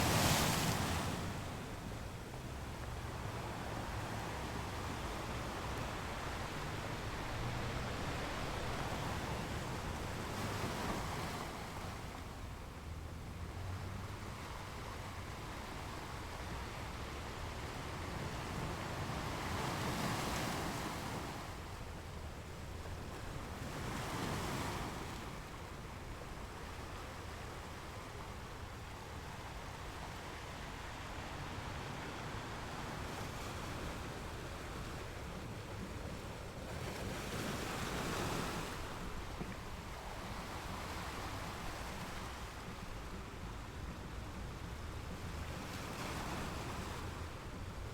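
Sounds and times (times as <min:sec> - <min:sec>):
ocean waves breaking: 0:00.0 - 0:16.7, 0:27.3 - 0:47.9.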